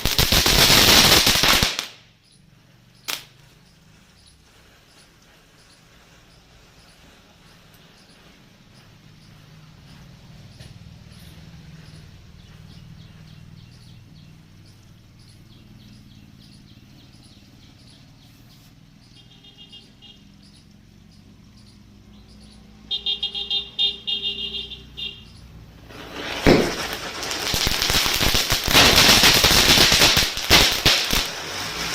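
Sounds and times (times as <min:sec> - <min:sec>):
matches catching fire crackling: 0:00.0 - 0:02.0, 0:03.0 - 0:03.6, 0:25.8 - 0:31.9.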